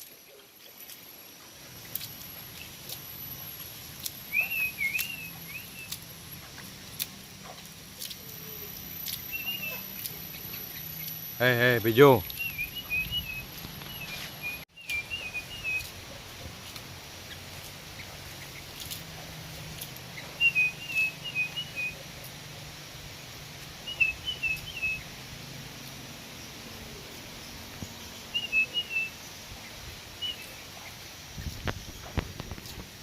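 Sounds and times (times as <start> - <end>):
bird chirping whistled notes: 4.2 - 6.0, 8.2 - 15.9, 20.2 - 22.0, 23.8 - 25.0, 28.3 - 29.2.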